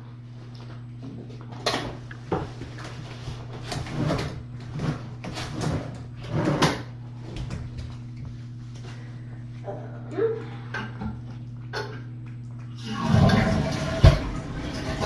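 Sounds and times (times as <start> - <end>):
steady low hum: 0.0 - 15.0
knocks and scraping rustles: 0.7 - 9.0.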